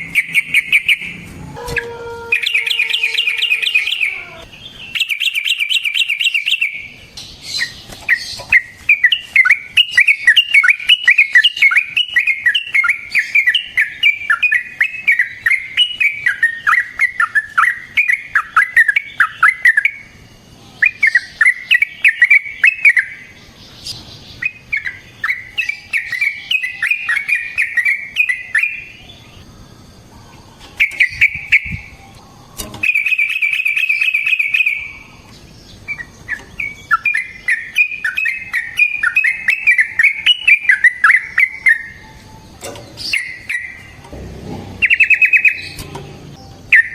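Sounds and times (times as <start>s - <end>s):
bulbul singing chattering notes: 44.7s - 46.9s.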